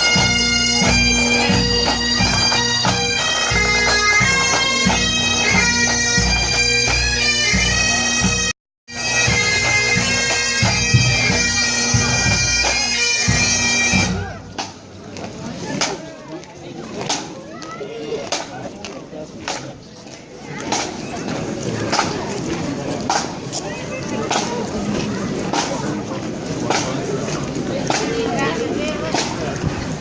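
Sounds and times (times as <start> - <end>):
bagpipes playing: 0.0 - 14.3.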